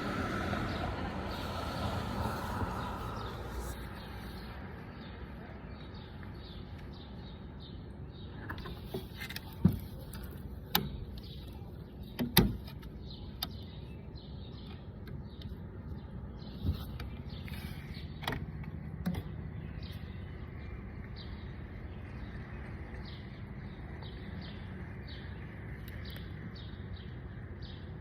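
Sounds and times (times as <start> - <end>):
low outdoor rumble: 0.0 - 6.4.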